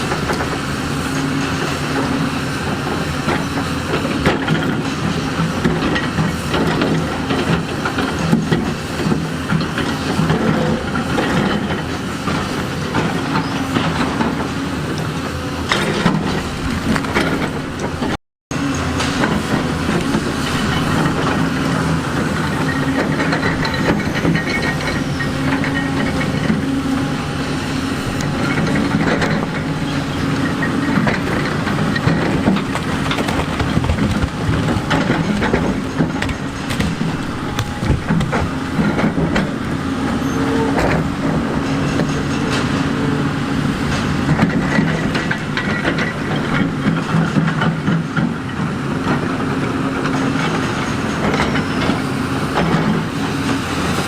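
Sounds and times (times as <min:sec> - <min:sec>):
excavator diesel engine working: 0:00.0 - 0:54.0
clanks of metal and rock: 0:22.2 - 0:26.7, 0:28.2 - 0:43.0, 0:43.8 - 0:54.0.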